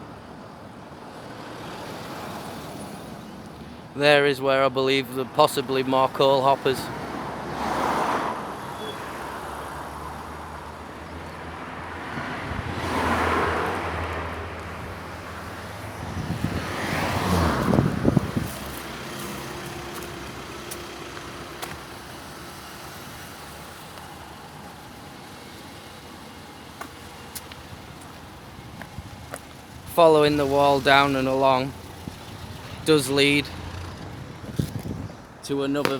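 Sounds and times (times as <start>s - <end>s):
vehicles passing: 0.0s - 35.9s
low engine hum: 9.6s - 35.4s.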